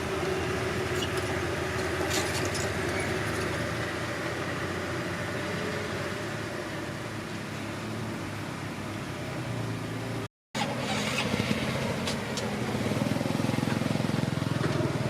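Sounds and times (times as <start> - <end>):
bulldozer diesel engine running: 0.0 - 7.1, 10.6 - 15.0.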